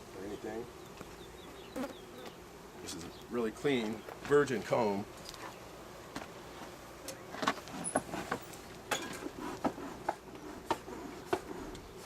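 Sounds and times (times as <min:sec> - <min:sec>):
hive tool clicks and scrapes: 0:07.0 - 0:12.0.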